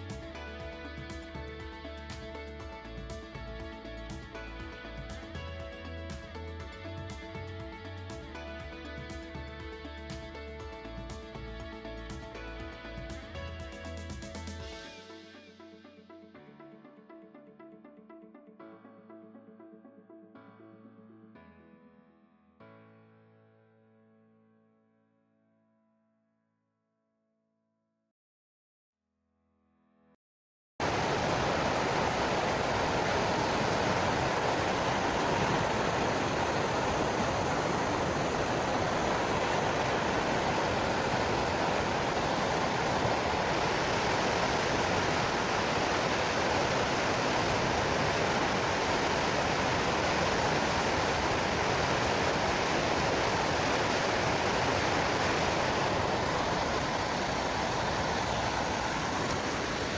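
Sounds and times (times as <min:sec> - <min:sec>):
river water rushing: 0:30.8 - 0:59.9.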